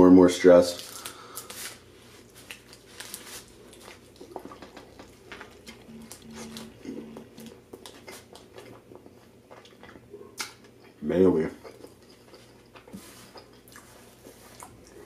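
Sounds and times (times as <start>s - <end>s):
person chewing: 0.8s - 11.0s, 11.6s - 15.0s
low humming: 3.6s - 9.0s.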